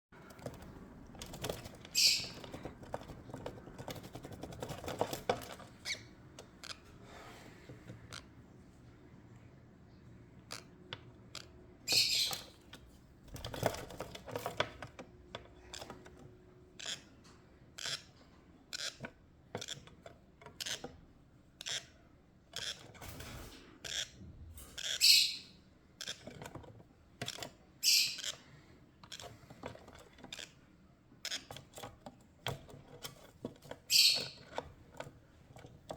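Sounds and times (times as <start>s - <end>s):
tapping and scratching in a box: 0.2s - 6.8s, 11.9s - 17.0s, 18.7s - 21.8s, 26.0s - 35.9s
parrot squawking: 24.8s - 25.5s, 27.8s - 28.3s, 33.9s - 34.4s.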